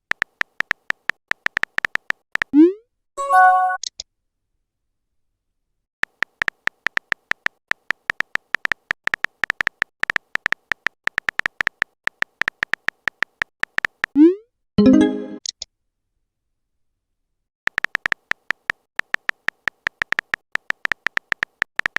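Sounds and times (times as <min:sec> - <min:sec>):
typing clicks: 0:00.1 - 0:02.6, 0:06.0 - 0:14.2, 0:17.7 - 0:21.9.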